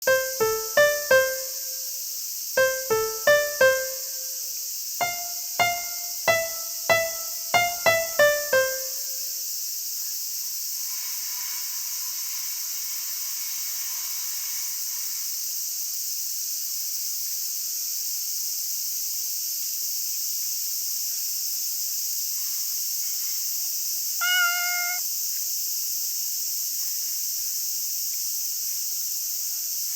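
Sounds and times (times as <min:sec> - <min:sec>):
piano notes: 0:00.0 - 0:01.9, 0:02.6 - 0:04.4, 0:05.0 - 0:09.3
insects chirring: 0:00.0 - 0:29.9.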